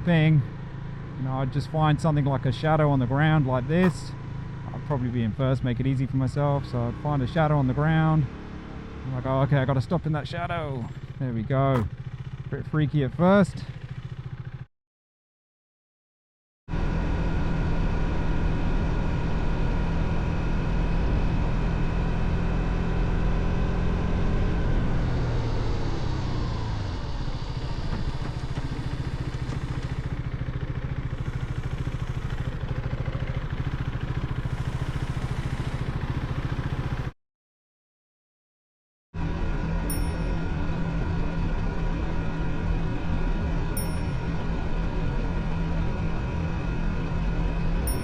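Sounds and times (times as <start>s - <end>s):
motorcycle engine idling: 0.1s - 14.7s, 26.0s - 37.1s.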